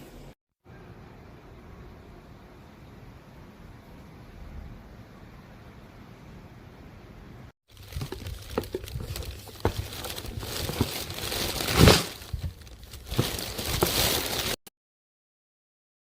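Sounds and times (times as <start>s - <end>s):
plastic packaging crinkling: 7.7s - 14.6s.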